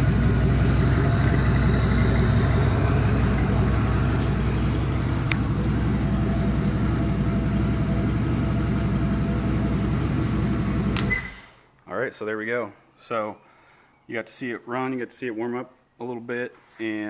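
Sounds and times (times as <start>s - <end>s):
car engine idling: 0.0s - 11.1s.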